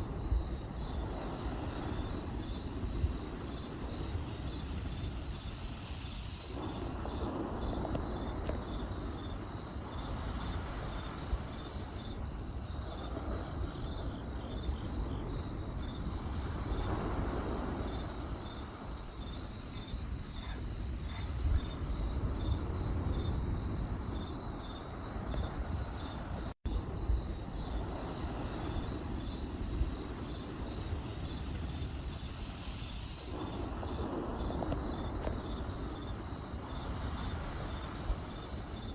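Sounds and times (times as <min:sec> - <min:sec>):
campfire low rumble: 0:00.0 - 0:38.9
crickets chirping: 0:00.0 - 0:38.9
burning wood crackling pops: 0:06.5 - 0:09.2, 0:33.2 - 0:36.9.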